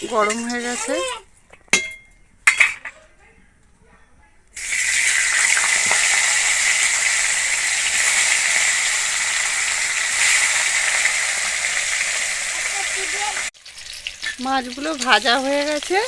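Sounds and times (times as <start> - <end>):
fish sizzling in hot oil: 4.6 - 16.0.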